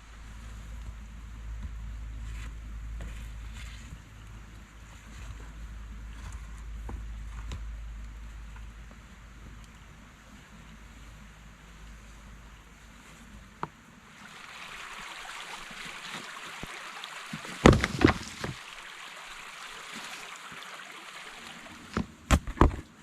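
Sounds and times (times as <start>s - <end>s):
running water rushing: 14.0s - 22.3s
sharp knocks: 17.6s - 18.6s.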